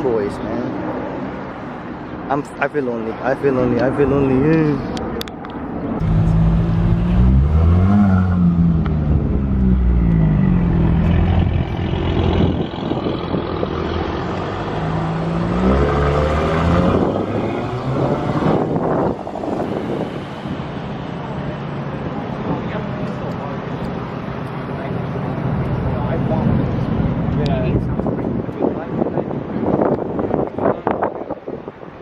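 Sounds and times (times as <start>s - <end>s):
car engine revving: 6.0s - 23.3s.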